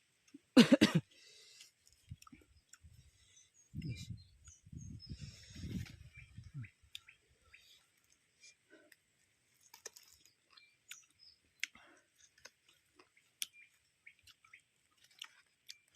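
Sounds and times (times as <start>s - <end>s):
person chewing with mouth smacks: 9.6s - 15.9s.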